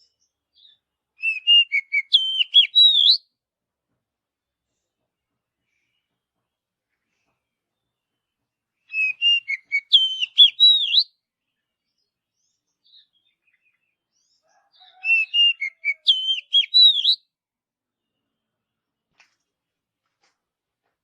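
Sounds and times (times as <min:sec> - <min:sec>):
bird singing whistled phrases: 0:00.6 - 0:03.2, 0:08.9 - 0:11.1, 0:15.0 - 0:17.2.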